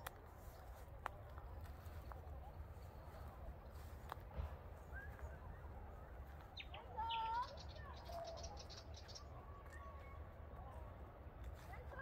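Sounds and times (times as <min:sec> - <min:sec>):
high bird trill: 0:06.6 - 0:09.3.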